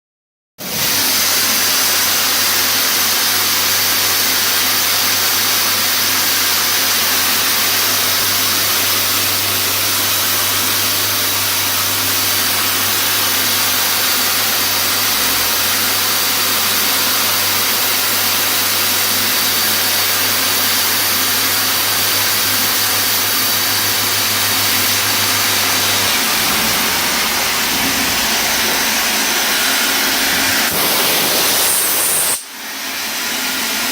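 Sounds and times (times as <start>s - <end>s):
machine loud hiss: 0.9s - 33.9s
low machine hum: 23.0s - 30.8s.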